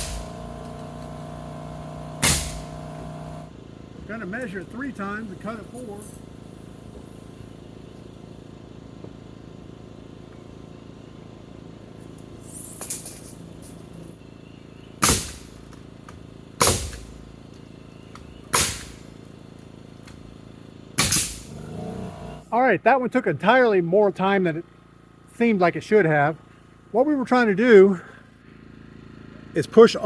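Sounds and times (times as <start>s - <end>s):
hammer striking nails into wood: 2.2s - 2.9s.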